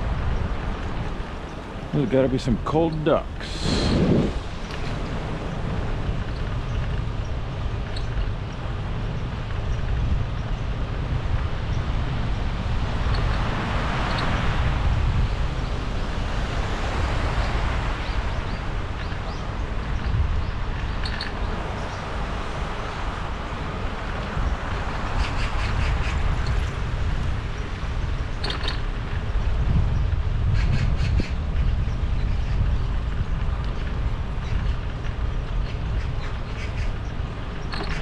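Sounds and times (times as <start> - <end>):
wind rumbling on microphone: 0.0 - 38.0
broad hiss: 3.1 - 4.5.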